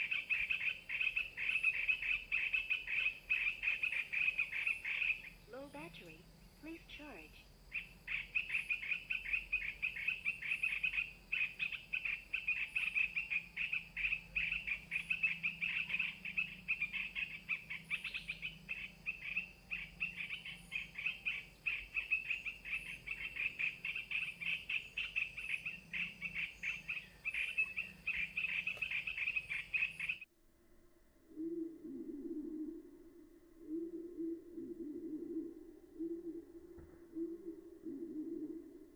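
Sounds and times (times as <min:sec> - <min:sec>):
recorded bird calls chattering: 0:00.0 - 0:30.3.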